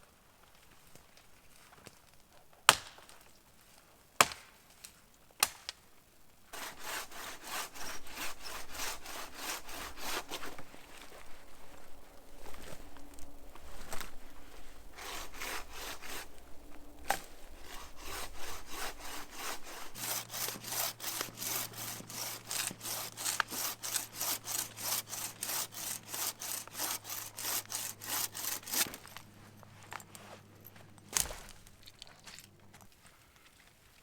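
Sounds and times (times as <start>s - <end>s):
frame saw cutting wood: 6.5s - 29.3s.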